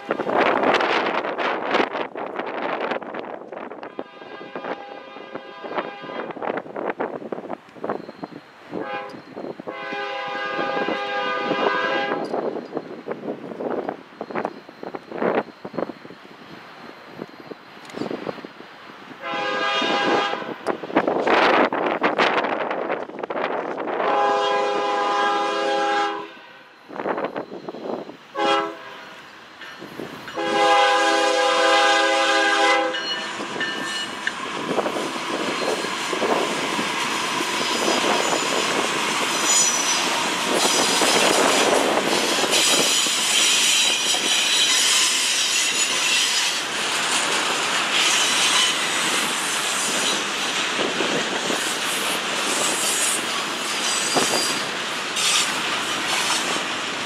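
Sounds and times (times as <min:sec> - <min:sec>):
train rolling on rails: 0:00.0 - 0:57.0
locomotive horn blasts: 0:03.8 - 0:06.5, 0:08.7 - 0:12.2, 0:19.2 - 0:20.7, 0:24.0 - 0:26.8, 0:28.3 - 0:29.2, 0:30.3 - 0:33.2
high-pitched wheel squeal: 0:35.3 - 0:36.4, 0:37.6 - 0:46.7, 0:48.0 - 0:50.2, 0:52.6 - 0:56.6.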